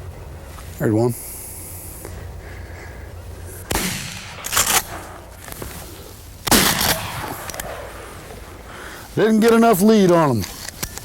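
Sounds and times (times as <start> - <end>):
shotgun shots: 3.7 - 5.4, 6.4 - 8.3.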